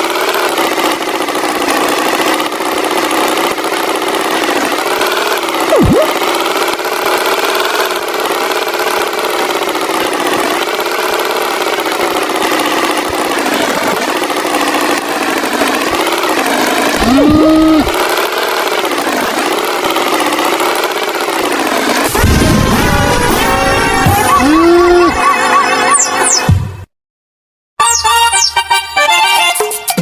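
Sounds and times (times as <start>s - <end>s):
cartoon tractor engine: 0.0s - 26.9s, 27.8s - 30.0s
short rising tone: 5.7s - 6.2s.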